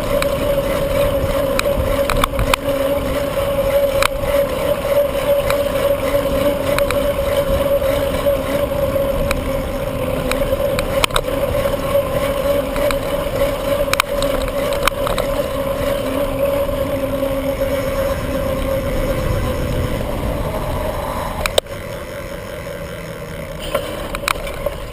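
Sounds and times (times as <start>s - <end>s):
steady hum: 0.0s - 24.9s
wind rumbling on microphone: 0.0s - 24.9s
sharp clicks: 10.2s - 11.4s, 12.7s - 15.6s, 21.4s - 21.7s.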